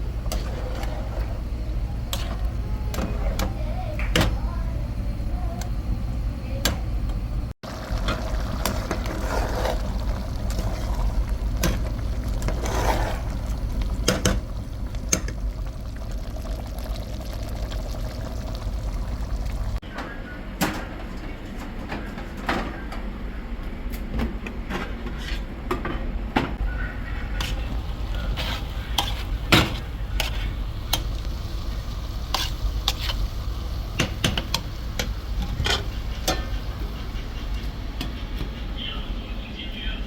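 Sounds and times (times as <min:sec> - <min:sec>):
pouring or stirring: 0:07.6 - 0:19.8
pots and dishes clinking: 0:34.0 - 0:38.6.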